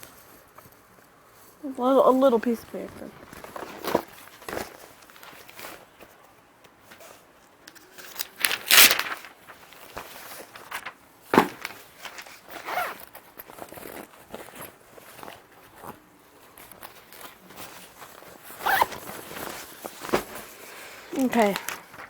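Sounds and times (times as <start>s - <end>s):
rustling and scraping handling noise: 0.0s - 22.0s.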